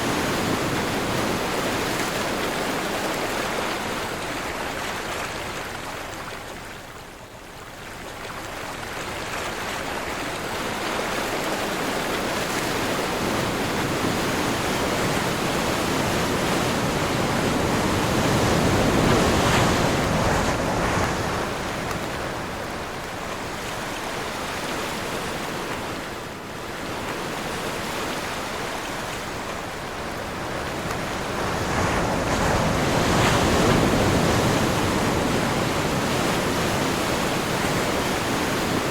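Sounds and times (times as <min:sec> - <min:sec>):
ocean waves breaking: 0:00.0 - 0:06.8, 0:08.3 - 0:38.9
wind blowing: 0:12.5 - 0:38.9.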